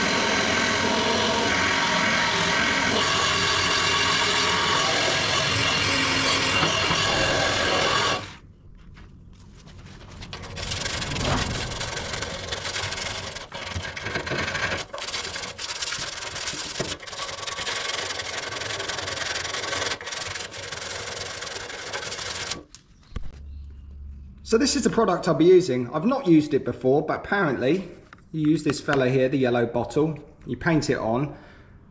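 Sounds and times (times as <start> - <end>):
loud power tool: 0.0 - 8.4.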